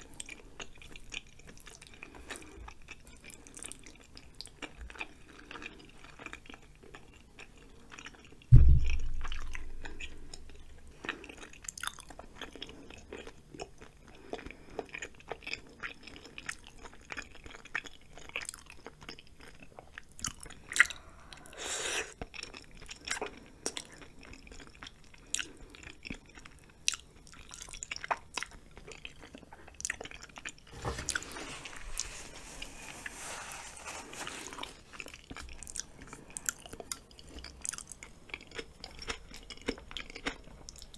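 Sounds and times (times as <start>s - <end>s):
close chewing with mouth clicks: 0.0s - 32.8s, 34.0s - 40.9s
heavy low thump: 8.5s - 9.6s.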